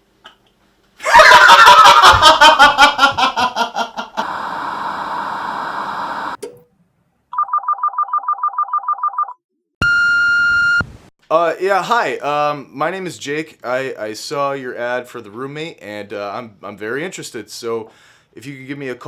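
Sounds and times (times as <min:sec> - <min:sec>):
telephone ringing: 0:07.4 - 0:09.4.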